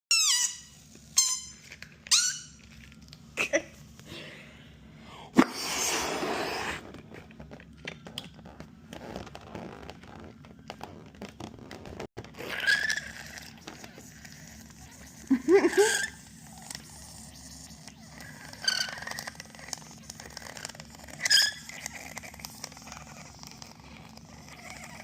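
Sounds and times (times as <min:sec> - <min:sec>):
rubber balloon squeaking: 0:00.1 - 0:02.8, 0:05.7 - 0:25.0
air hissing: 0:05.4 - 0:06.8.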